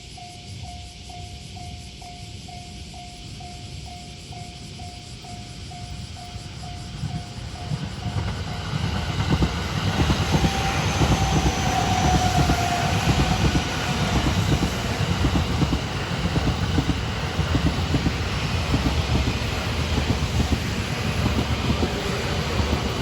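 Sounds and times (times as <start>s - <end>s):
train rumbling past: 0.0s - 23.0s
level-crossing bell: 0.1s - 8.7s.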